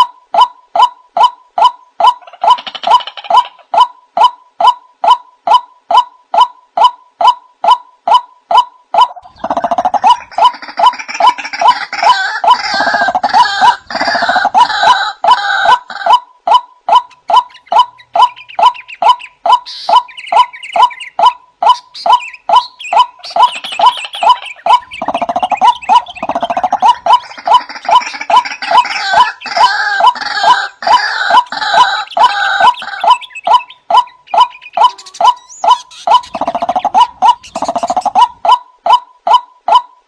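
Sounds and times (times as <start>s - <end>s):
waterhen calling: 0.0s - 39.9s.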